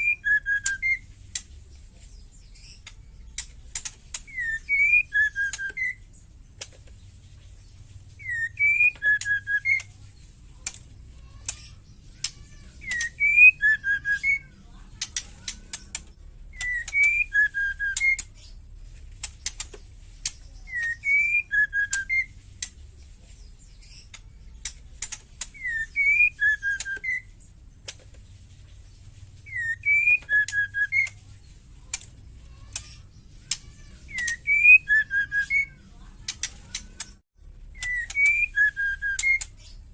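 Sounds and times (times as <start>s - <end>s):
bird whistled calls: 0.0s - 1.4s, 4.2s - 6.2s, 8.2s - 9.9s, 11.4s - 14.6s, 15.4s - 18.6s, 20.6s - 22.4s, 25.5s - 27.4s, 29.4s - 31.2s, 32.6s - 35.8s, 37.8s - 39.8s
bird rattling chatter: 8.2s - 23.0s.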